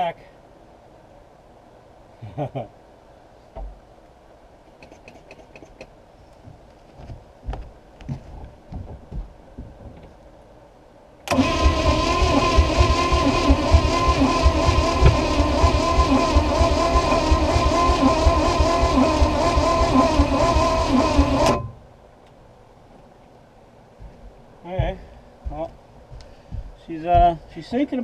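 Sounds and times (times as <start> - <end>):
engine cranking on starter: 11.3 - 21.7.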